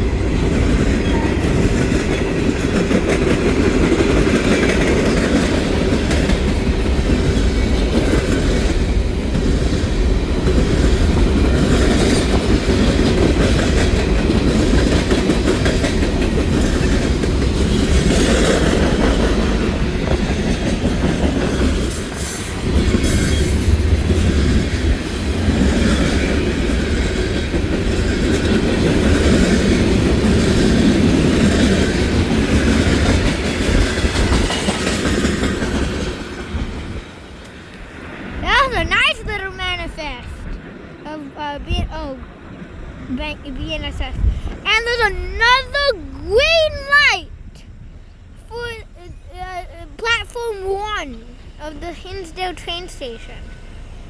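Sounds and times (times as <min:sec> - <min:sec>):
freight train wheels clacking: 0:00.0 - 0:41.0.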